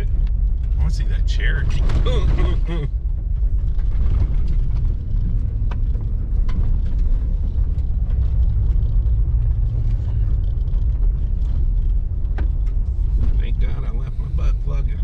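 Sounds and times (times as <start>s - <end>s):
vehicle cabin rumbling: 0.0s - 15.0s
small knocks and rattles: 1.7s - 13.7s.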